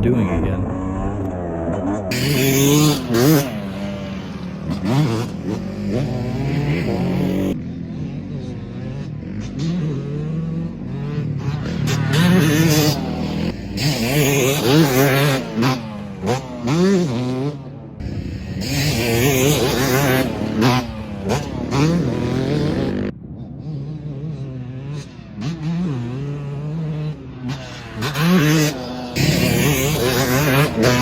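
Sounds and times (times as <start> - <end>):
motocross bike revving: 0.0 - 31.0.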